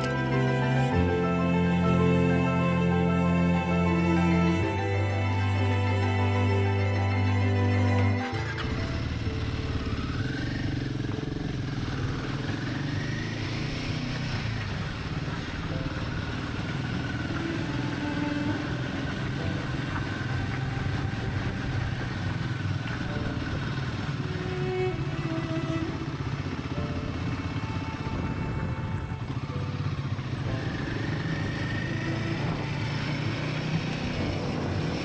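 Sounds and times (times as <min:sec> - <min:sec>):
motorcycle engine running: 0:07.3 - 0:35.0.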